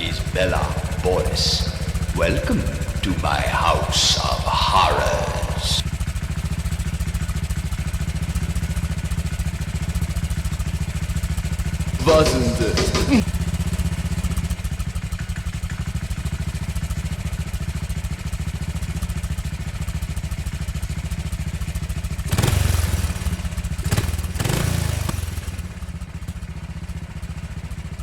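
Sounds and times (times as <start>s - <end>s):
engine idling and revving: 0.0s - 28.0s.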